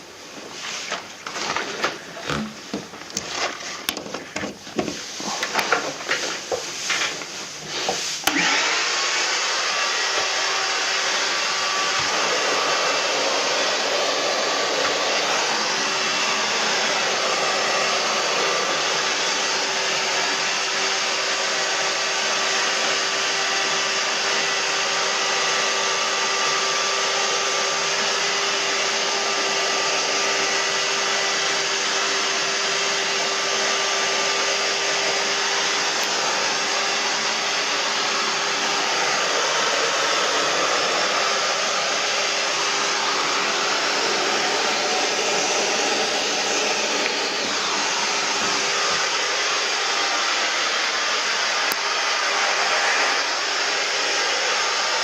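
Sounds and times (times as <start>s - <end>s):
vacuum or blower running: 0.0s - 55.0s.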